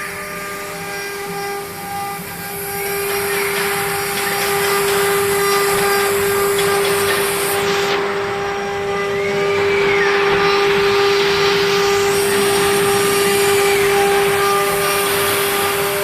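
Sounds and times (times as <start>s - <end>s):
spindle whining: 0.4s - 16.0s
loud rushing noise: 7.6s - 16.0s
rising-and-falling tone: 7.8s - 15.9s.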